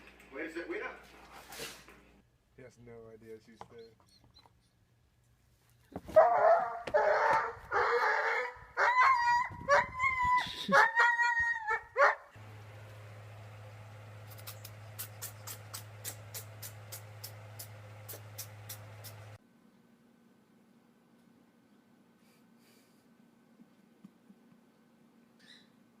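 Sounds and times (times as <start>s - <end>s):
dog whining and yipping: 6.2s - 12.1s.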